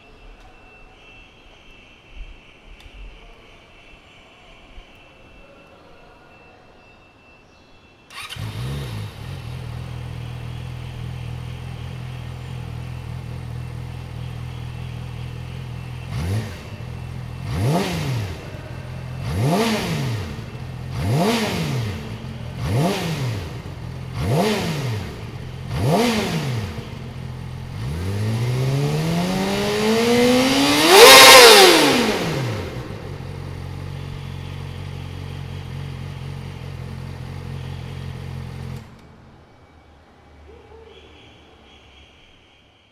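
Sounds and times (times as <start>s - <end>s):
motorcycle engine revving: 8.1s - 39.5s
motorcycle engine idling: 8.1s - 39.6s.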